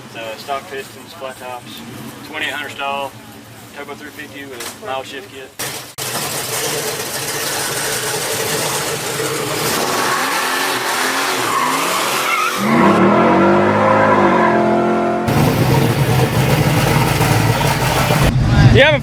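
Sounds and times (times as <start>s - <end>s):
car engine revving: 6.4s - 18.3s
tyres spinning with a loud hiss: 15.3s - 18.3s.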